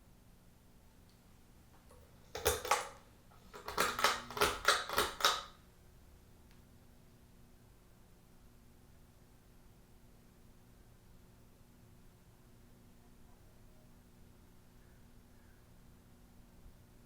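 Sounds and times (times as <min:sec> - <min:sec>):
clatter of small hard parts: 0:01.9 - 0:05.5
sharp clicking rattles: 0:01.9 - 0:05.5.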